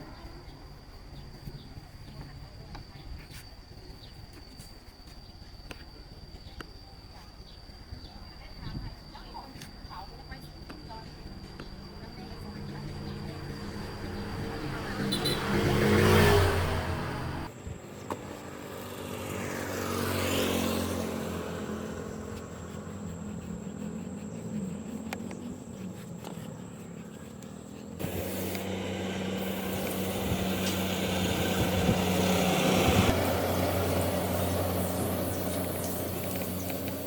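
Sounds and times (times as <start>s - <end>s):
car engine humming: 21.0s - 37.0s.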